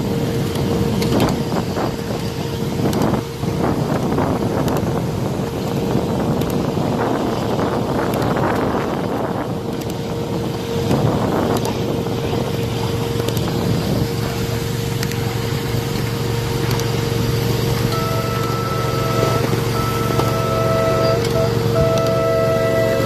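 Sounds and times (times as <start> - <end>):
miniature train rumbling on track: 0.0 - 23.0
steady tone: 9.4 - 23.0
pitched held notes: 17.8 - 23.0.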